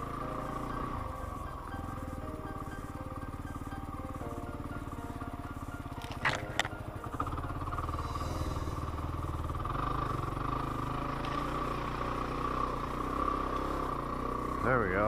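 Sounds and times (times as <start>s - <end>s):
motorcycle engine running: 0.0s - 15.0s
sharp clicks: 6.0s - 7.0s.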